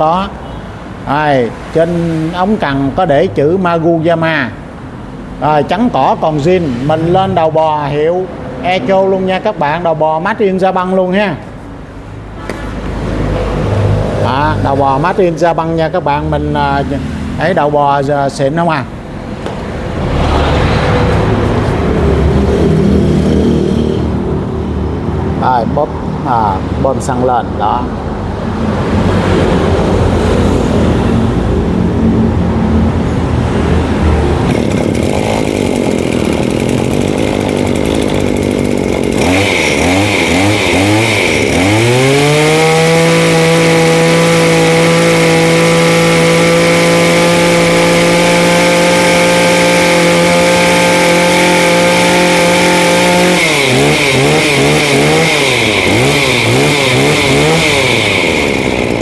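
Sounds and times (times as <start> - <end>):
brush cutter engine revving: 19.4 - 24.5, 34.4 - 59.0.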